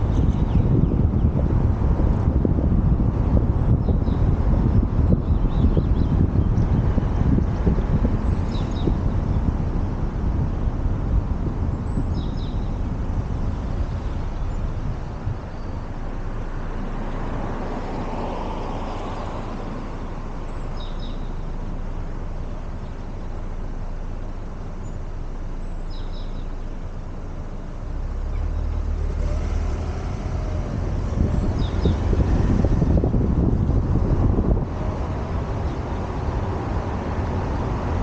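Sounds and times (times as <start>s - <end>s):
low rumble of traffic: 0.0s - 38.0s
wind rumble on microphone: 0.0s - 38.0s
vehicle passing: 13.4s - 20.6s, 27.9s - 38.0s.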